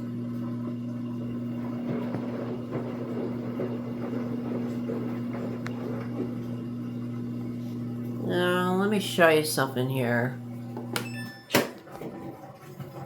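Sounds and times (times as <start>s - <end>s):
drain pump humming: 0.0s - 13.0s
washing machine drum tumbling: 0.2s - 9.2s.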